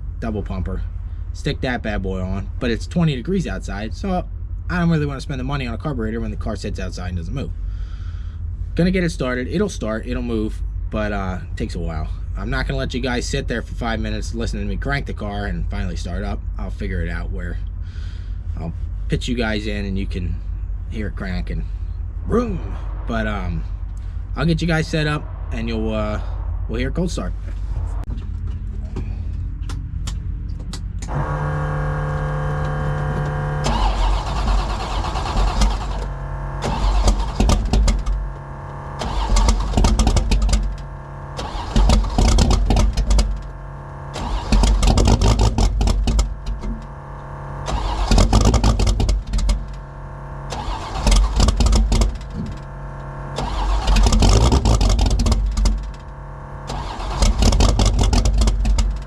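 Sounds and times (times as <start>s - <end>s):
engine revving: 29.7s - 59.0s
engine cranking: 30.7s - 59.0s.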